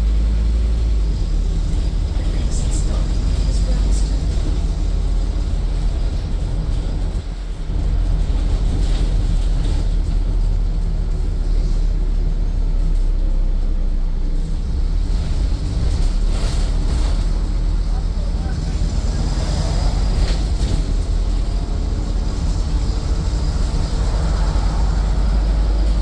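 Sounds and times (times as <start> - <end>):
bus diesel engine droning: 0.0 - 26.0
road noise: 0.0 - 26.0.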